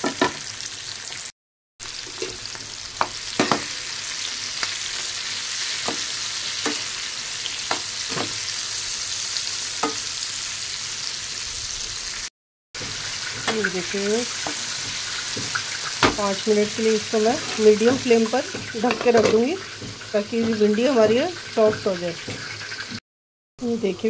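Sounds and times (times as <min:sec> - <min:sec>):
okra sizzling in hot oil: 0:00.0 - 0:23.0
spatula clacking against pan: 0:05.9 - 0:06.9, 0:14.4 - 0:22.9.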